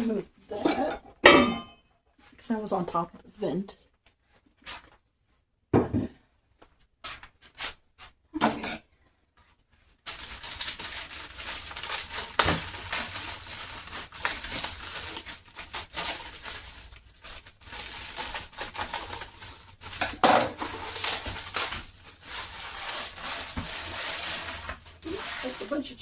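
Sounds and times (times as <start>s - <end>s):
plastic packaging crinkling: 9.9s - 26.0s.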